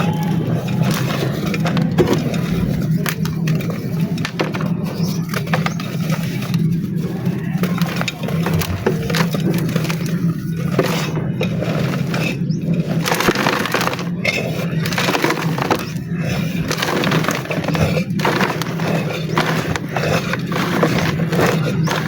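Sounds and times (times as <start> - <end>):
steady low hum: 0.0 - 13.3
dry mud crumbling and crunching: 0.0 - 22.0.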